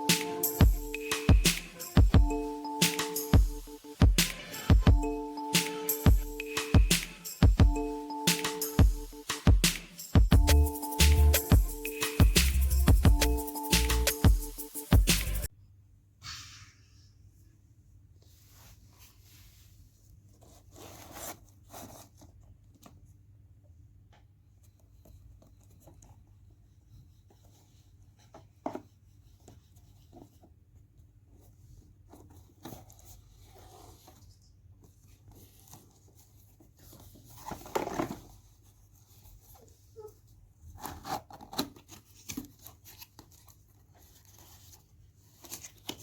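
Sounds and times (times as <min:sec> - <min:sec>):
plastic and cardboard rustling: 0:18.2 - 0:23.2, 0:24.7 - 0:46.0.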